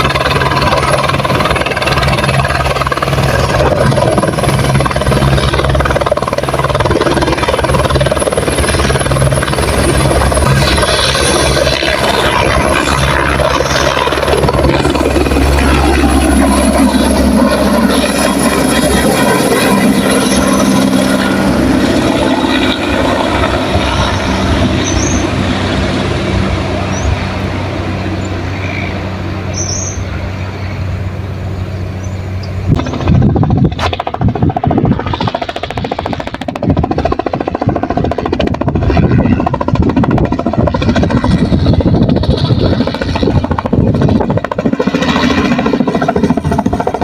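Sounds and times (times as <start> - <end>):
gusty low rumbling: 0.0 - 47.0
helicopter engine and rotor hum: 0.0 - 47.0.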